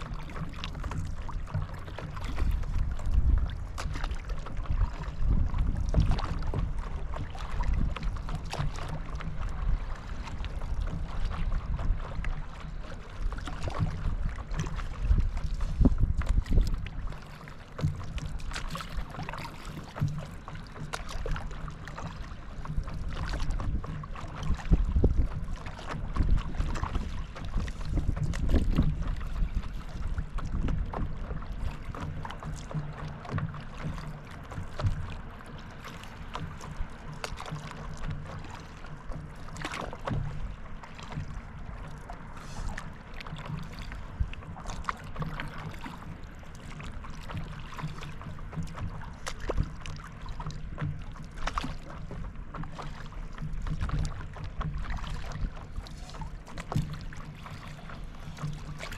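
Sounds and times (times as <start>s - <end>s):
wind on microphone: 0.0s - 20.4s, 21.0s - 41.8s, 42.4s - 46.0s
paddle splashes: 0.0s - 58.9s
water lapping: 0.0s - 58.9s.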